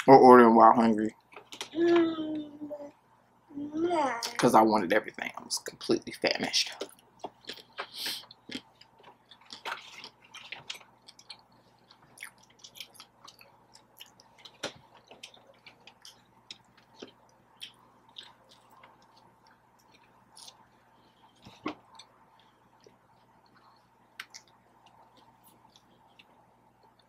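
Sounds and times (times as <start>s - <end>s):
mouth clicks and smacks of chewing: 21.3s - 27.0s.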